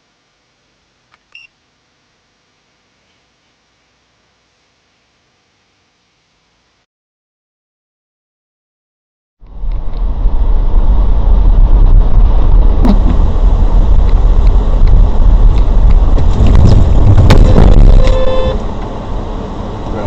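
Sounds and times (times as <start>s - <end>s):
car road and engine rumble: 9.4s - 20.0s
short pitched tone: 17.3s - 18.7s.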